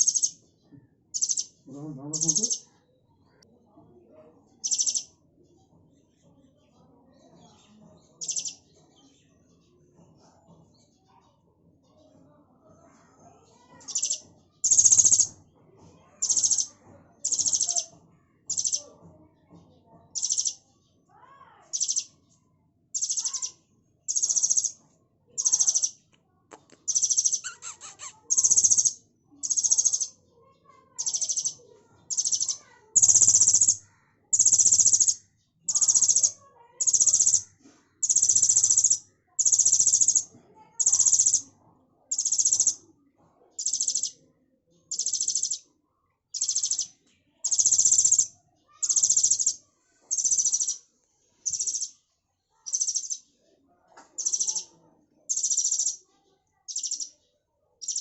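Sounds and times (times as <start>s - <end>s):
baby bird calling shrilly: 0.0s - 0.4s, 1.2s - 1.5s, 2.2s - 2.7s, 4.6s - 5.1s, 13.9s - 15.4s, 16.2s - 16.7s, 17.3s - 17.9s, 18.5s - 18.8s, 20.2s - 20.6s, 21.7s - 22.1s, 23.0s - 24.8s, 25.4s - 26.0s, 26.6s - 30.2s, 31.0s - 41.4s, 42.1s - 42.8s, 43.6s - 44.2s, 44.9s - 45.6s, 46.4s - 50.8s, 51.5s - 52.0s, 52.7s - 53.2s, 54.2s - 54.7s, 55.3s - 56.0s, 56.7s - 57.1s.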